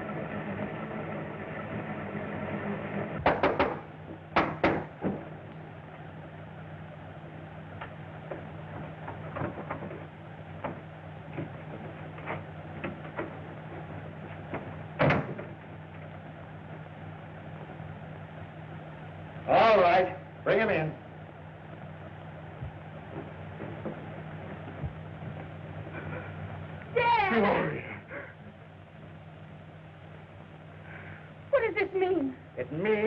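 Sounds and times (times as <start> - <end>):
steady low hum: 0.0 - 33.0
loud knocks on door: 3.2 - 5.2.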